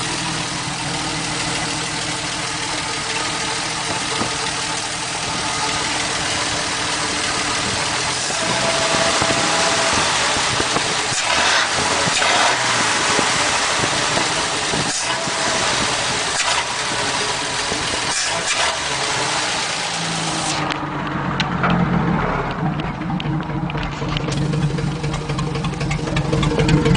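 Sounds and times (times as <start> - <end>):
engine running loud: 0.0 - 26.9.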